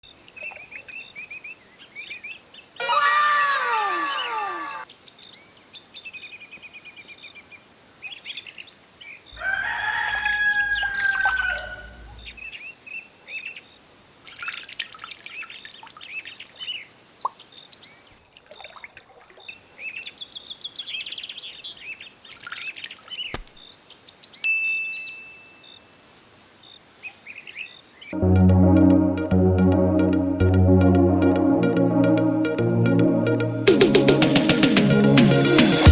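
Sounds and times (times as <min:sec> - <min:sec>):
songbirds chirping: 0:00.0 - 0:18.2, 0:19.4 - 0:28.2
rooster crowing: 0:02.8 - 0:04.8, 0:09.4 - 0:12.5
electronic music with beat: 0:28.2 - 0:35.9.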